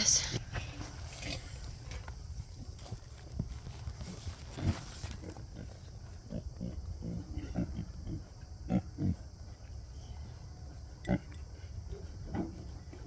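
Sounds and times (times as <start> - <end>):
pigs grunting: 4.1 - 13.0.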